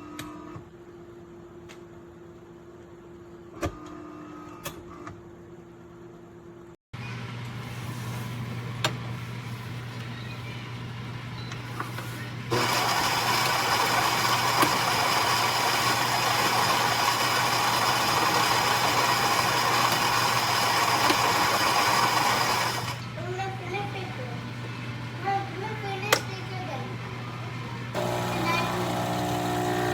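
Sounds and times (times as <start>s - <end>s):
espresso machine humming: 12.5s - 23.0s, 28.0s - 29.9s
espresso machine whirring: 12.5s - 23.0s, 28.0s - 29.9s.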